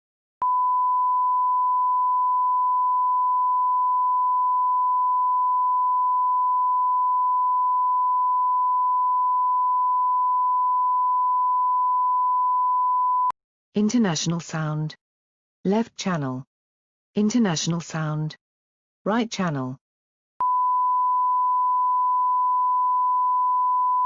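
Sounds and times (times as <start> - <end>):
steady sine-wave test tone: 0.4 - 13.3, 20.4 - 24.0.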